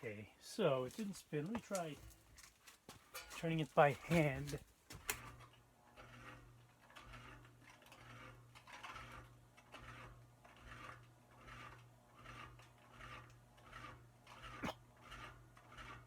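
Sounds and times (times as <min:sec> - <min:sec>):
fan rotor scraping rhythmically: 0:06.0 - 0:16.0.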